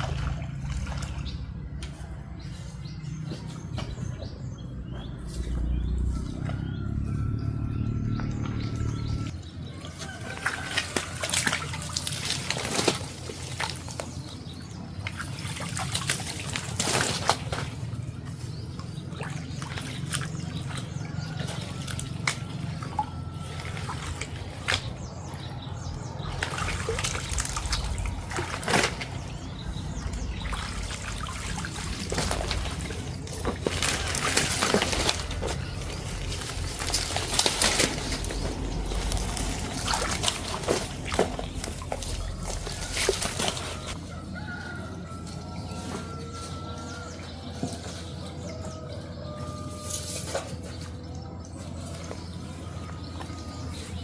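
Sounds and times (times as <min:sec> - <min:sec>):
water trickling and splashing: 0:00.0 - 0:04.6, 0:05.3 - 0:54.0
rooster crowing: 0:06.0 - 0:11.5, 0:42.6 - 0:47.6, 0:48.2 - 0:50.1.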